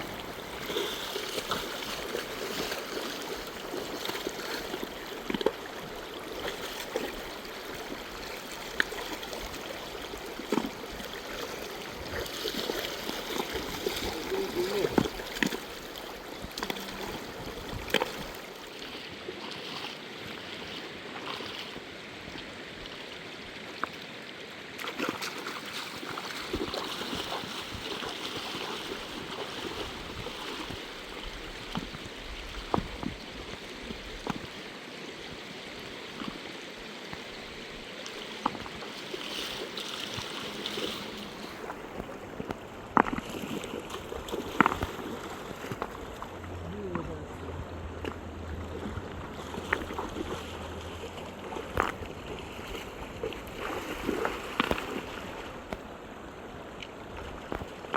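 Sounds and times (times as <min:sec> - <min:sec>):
river rushing over stones: 0:00.0 - 0:57.9
sharp knocks or splashes: 0:12.1 - 0:15.7.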